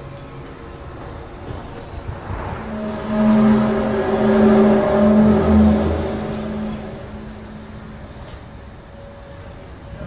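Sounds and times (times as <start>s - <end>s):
loud low droning tone: 2.0s - 9.0s.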